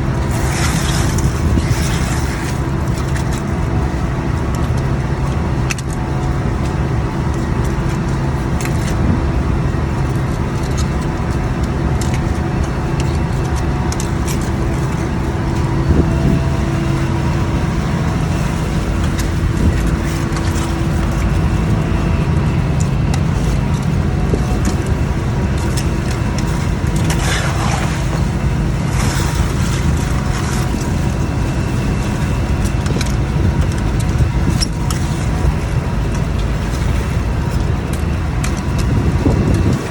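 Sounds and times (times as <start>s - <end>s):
boat engine drone: 0.0s - 39.9s.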